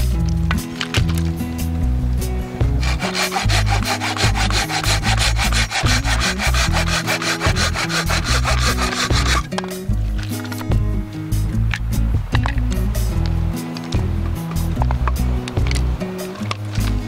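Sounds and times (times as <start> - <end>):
background music: 0.0 - 17.0
saw cutting wood: 2.6 - 9.6.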